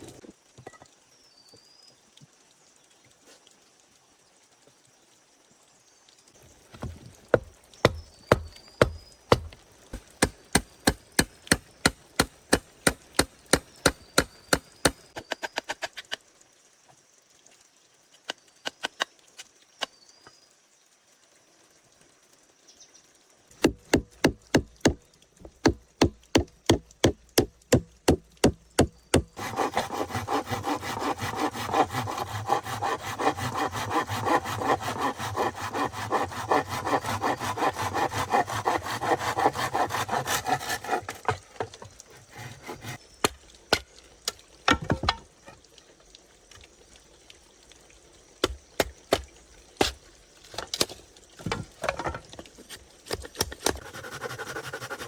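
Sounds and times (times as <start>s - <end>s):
hand saw cutting wood: 6.8s - 15.4s, 23.6s - 43.0s, 53.2s - 55.0s
sharp knocks on wood: 23.6s - 29.3s.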